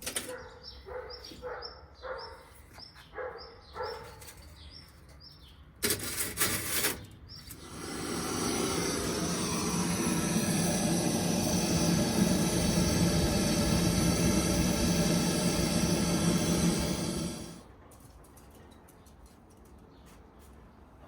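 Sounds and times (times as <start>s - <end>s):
steady hiss: 7.6s - 17.6s.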